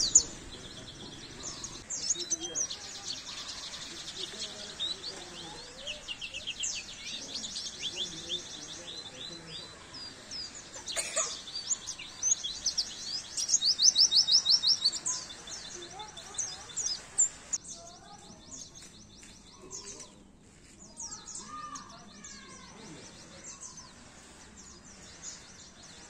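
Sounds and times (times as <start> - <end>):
bird chirping song: 0.0 - 26.0.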